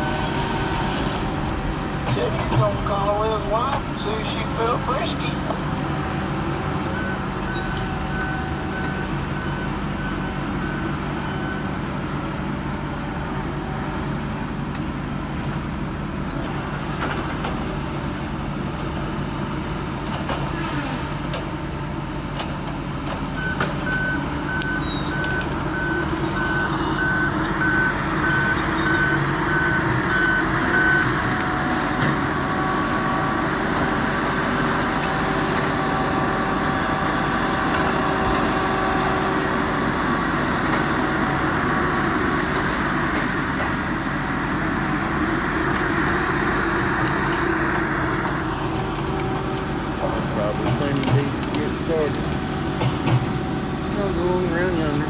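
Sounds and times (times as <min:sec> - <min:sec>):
heavy equipment engine running: 0:00.0 - 0:55.0
backup alarm beeps: 0:02.1 - 0:05.4, 0:23.4 - 0:31.2.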